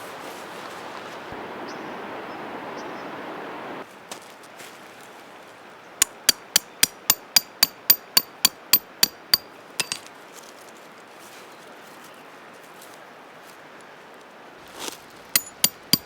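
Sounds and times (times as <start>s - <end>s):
hammer striking metal: 6.0s - 10.0s, 15.3s - 16.0s.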